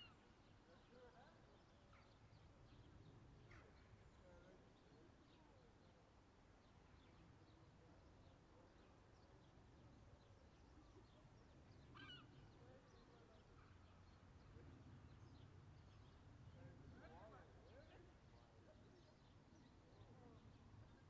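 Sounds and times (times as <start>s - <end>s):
faint bird chirps: 10.8s - 14.0s.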